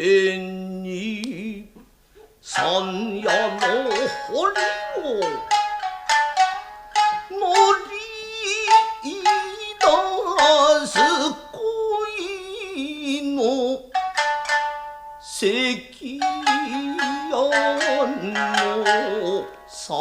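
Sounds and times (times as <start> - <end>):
person singing with vibrato: 0.0 - 1.8, 2.4 - 14.2, 15.1 - 20.0
shamisen plucking: 2.2 - 20.0.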